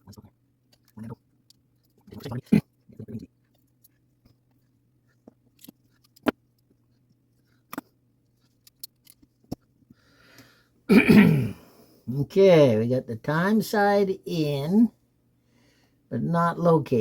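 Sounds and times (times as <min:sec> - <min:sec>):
light clicks of clock parts: 0:03.4 - 0:10.5.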